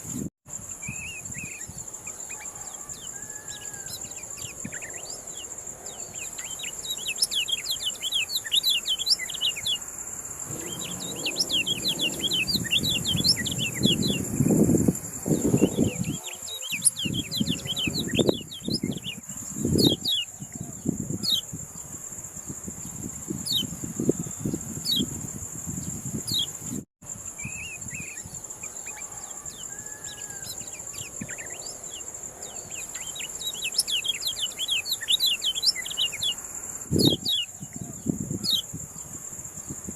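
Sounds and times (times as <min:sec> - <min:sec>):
high insect drone: 0:00.1 - 0:39.9
bird chirps and trills: 0:00.9 - 0:14.6, 0:15.2 - 0:21.5, 0:27.4 - 0:36.4
low rumbling noise: 0:10.4 - 0:16.0.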